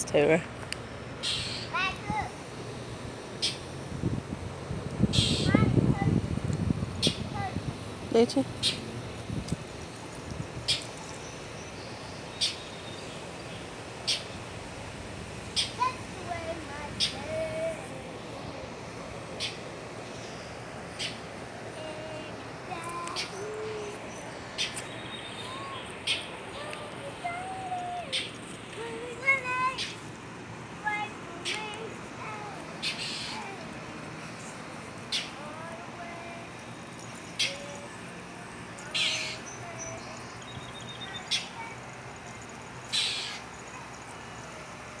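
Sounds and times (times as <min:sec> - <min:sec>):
bird chipping: 0:01.2 - 0:01.8, 0:32.8 - 0:33.4
bird harsh rasping calls: 0:01.2 - 0:01.8, 0:05.1 - 0:05.6, 0:32.8 - 0:33.5, 0:42.9 - 0:43.4.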